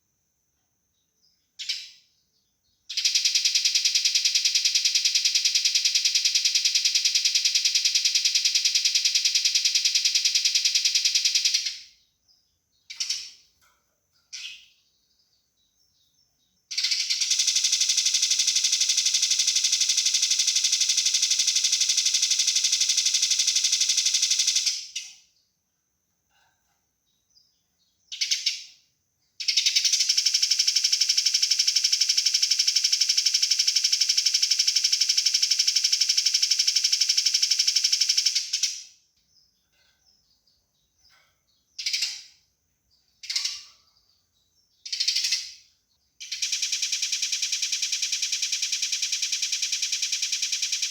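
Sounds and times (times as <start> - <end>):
sparrows harsh chattering: 12.8 - 20.1, 39.4 - 46.6.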